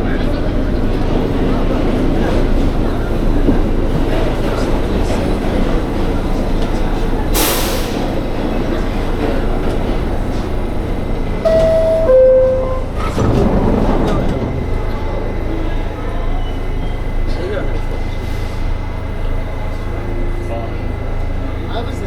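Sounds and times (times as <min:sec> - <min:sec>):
subway train rumbling: 0:00.0 - 0:22.0
two-note falling chime: 0:11.5 - 0:13.2.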